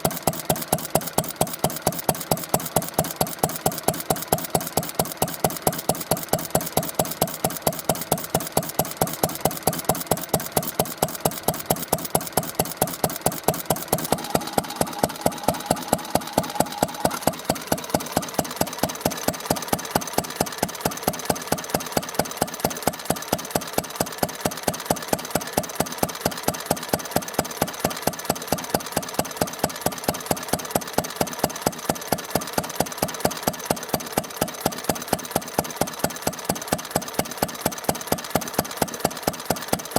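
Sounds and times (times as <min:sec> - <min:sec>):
stationary oil engine idling: 0:00.0 - 0:24.9.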